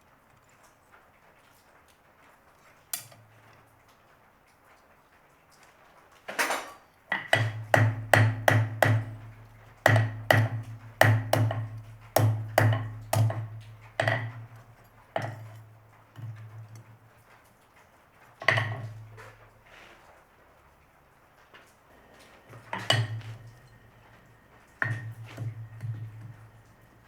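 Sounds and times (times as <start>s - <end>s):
hammer striking steel on anvil: 7.1s - 9.2s, 9.9s - 15.6s, 22.4s - 27.0s.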